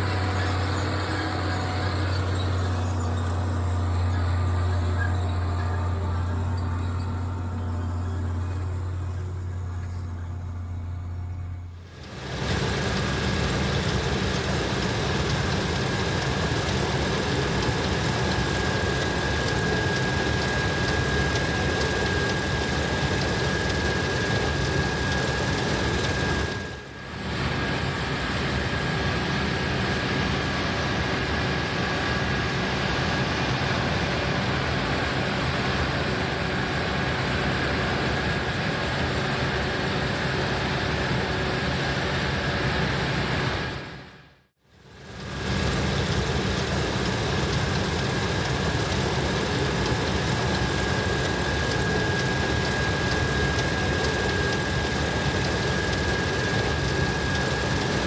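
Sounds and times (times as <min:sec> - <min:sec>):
tractor diesel engine running: 0:00.0 - 0:27.0, 0:45.1 - 0:58.0
constant high whine: 0:00.0 - 0:58.0.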